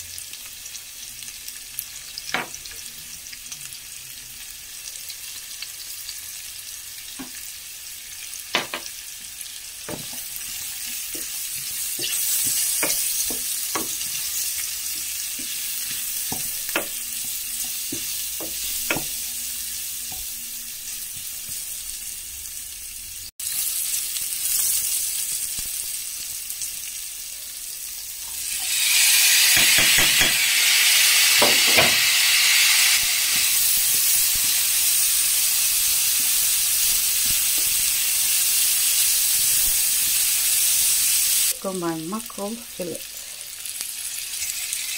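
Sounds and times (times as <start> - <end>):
vegetables sizzling in a pot: 0.0 - 44.9
wooden spatula knocking pan: 9.9 - 10.3, 11.1 - 14.2, 14.9 - 19.2.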